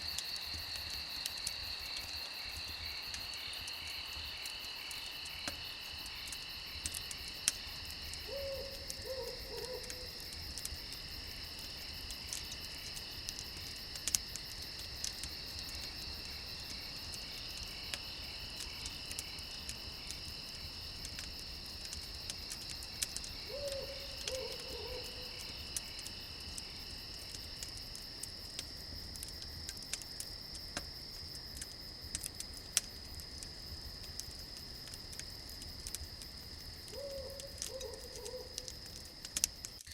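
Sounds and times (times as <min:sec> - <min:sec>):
campfire crackling: 0:00.0 - 0:39.9
crickets chirping: 0:00.0 - 0:39.9
owl hooting: 0:08.3 - 0:10.1, 0:23.5 - 0:25.2, 0:36.9 - 0:38.6.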